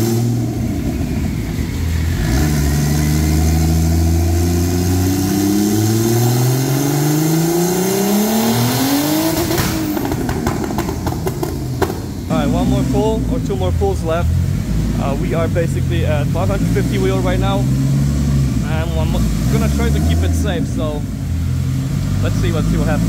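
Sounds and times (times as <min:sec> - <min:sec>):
car engine at full throttle: 0:00.0 - 0:23.0
exhaust pops and cracks: 0:09.4 - 0:12.3.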